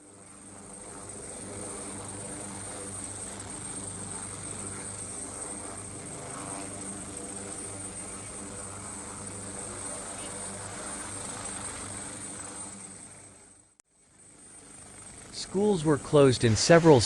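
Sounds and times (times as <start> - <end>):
engine drone with high whine: 0.0 - 17.0.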